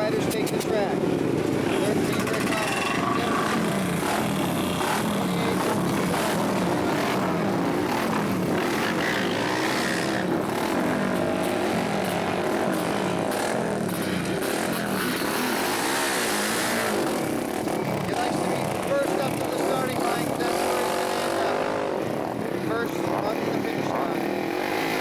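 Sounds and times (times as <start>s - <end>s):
racing motorcycle engines revving: 0.0s - 25.0s.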